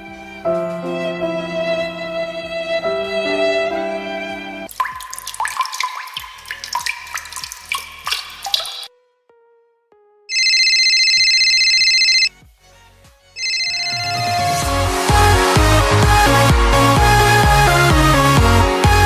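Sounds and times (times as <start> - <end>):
water drop bloops: 4.7 - 8.9
electronic telephone ring: 10.3 - 12.3, 13.4 - 14.6.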